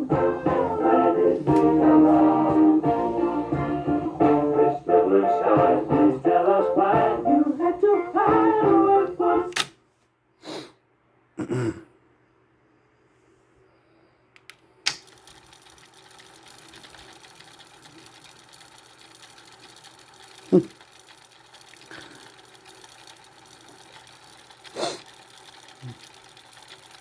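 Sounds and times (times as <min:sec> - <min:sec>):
cassette deck mechanical whir: 0:00.0 - 0:09.7, 0:14.9 - 0:27.0
cassette transport clicking: 0:09.5 - 0:09.8.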